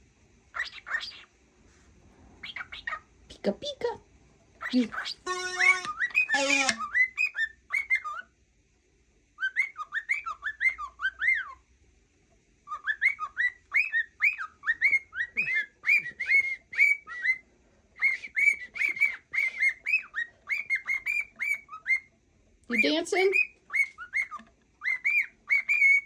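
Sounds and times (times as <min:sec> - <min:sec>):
cockatiel whistling and chattering: 0:00.5 - 0:01.3, 0:02.4 - 0:03.1, 0:04.6 - 0:08.3, 0:09.4 - 0:11.6, 0:12.7 - 0:17.4, 0:18.0 - 0:22.1, 0:22.7 - 0:26.0.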